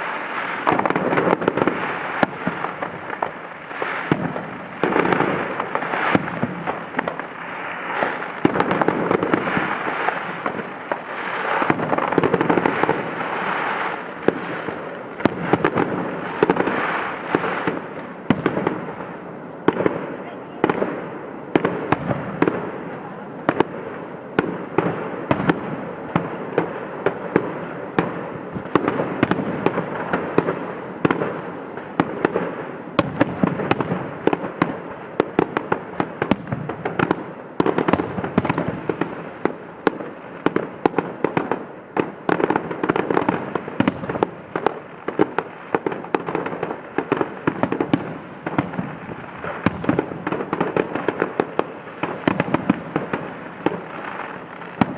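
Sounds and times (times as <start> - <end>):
overlapping explosions: 0.0 - 39.2
fireworks bangs and pops: 0.0 - 54.9.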